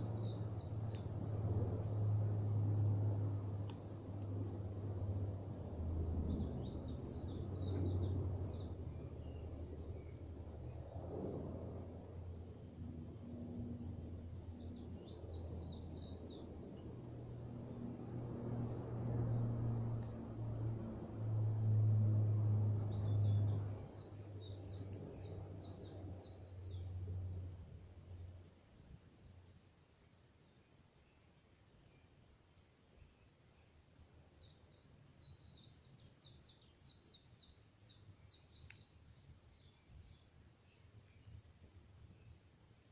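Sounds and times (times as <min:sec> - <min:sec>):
low hum: 0:00.0 - 0:29.4
small birds chirping: 0:00.0 - 0:42.9.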